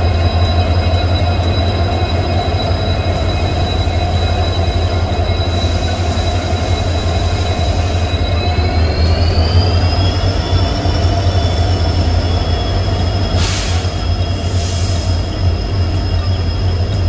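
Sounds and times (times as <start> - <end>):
high wheel squeal: 0.0 - 17.0
train rumbling: 0.0 - 17.0
short hisses: 13.4 - 15.1.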